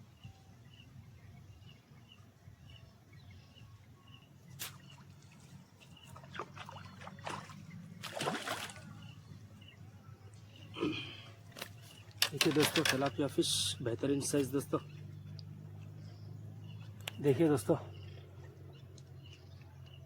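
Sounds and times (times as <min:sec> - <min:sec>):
water splashing: 0:04.6 - 0:09.1.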